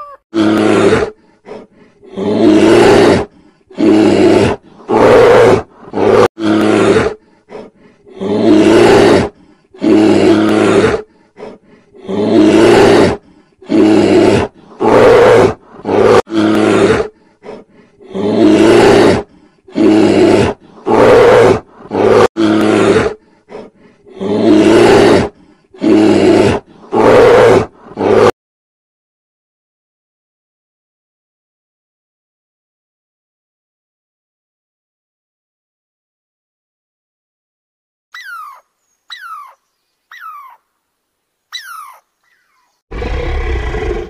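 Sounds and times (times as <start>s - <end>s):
bear roaring: 0.0s - 28.4s, 42.9s - 44.0s.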